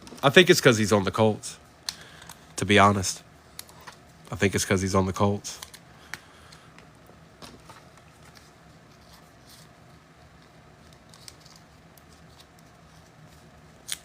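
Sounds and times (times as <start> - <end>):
steady low hum: 0.0 - 14.0
trading cards being handled: 7.4 - 14.0.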